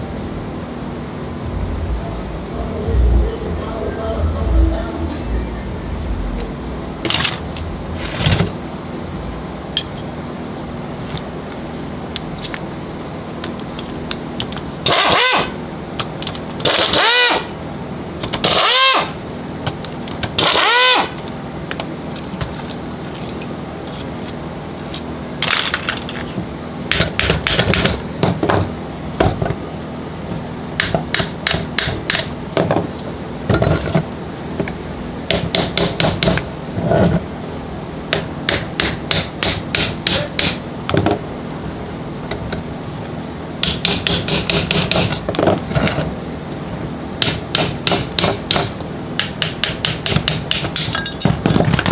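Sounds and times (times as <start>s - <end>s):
steady hum: 0.0s - 51.9s
metal tools clicking and knocking: 50.6s - 51.8s.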